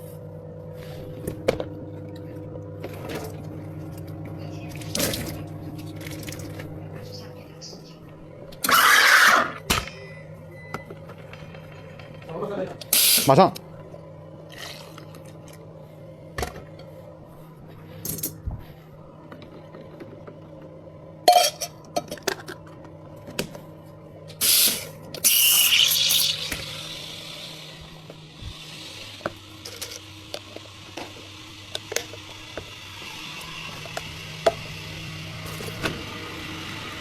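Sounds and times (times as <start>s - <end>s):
low machine hum: 0.0s - 37.0s
cups and utensils clinking: 21.3s - 22.5s.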